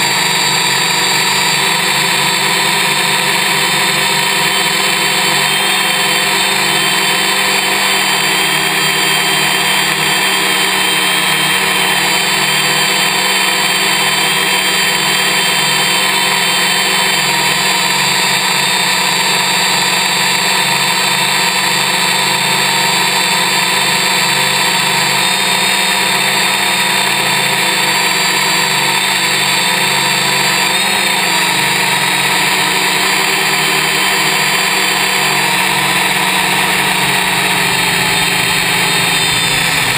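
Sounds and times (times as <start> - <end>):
multicopter motors whining: 0.0 - 39.9.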